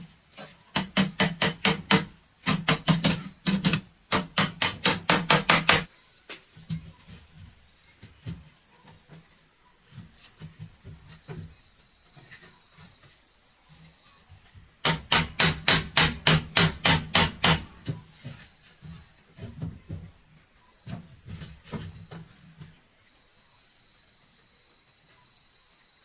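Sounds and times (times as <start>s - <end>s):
insects droning: 0.0s - 26.0s
hammer striking wood: 0.7s - 5.9s, 14.8s - 17.8s.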